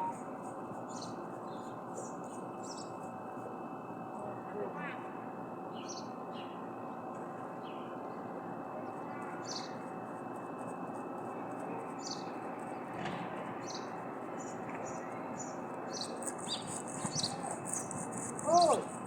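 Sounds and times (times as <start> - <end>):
steady background noise: 0.0 - 19.0
small birds chirping: 0.8 - 3.0, 8.8 - 9.9, 11.5 - 13.0, 13.6 - 18.9.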